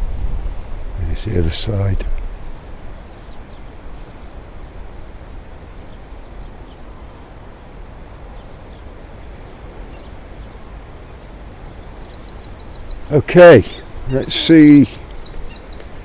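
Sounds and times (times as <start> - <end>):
wind rumbling on microphone: 0.0 - 16.0
faint bird chirps: 5.0 - 16.0.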